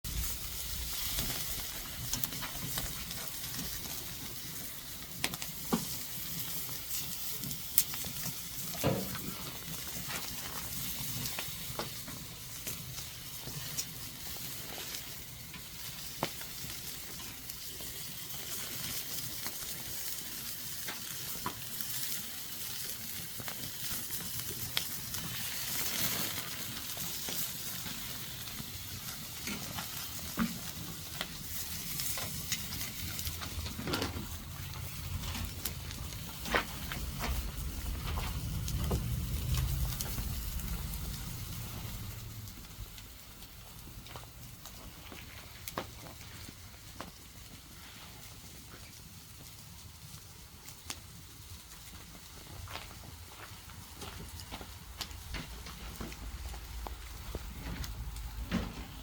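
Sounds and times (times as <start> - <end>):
food sizzling in frying: 0.1 - 46.8
low rumble: 33.2 - 44.4, 54.6 - 59.0.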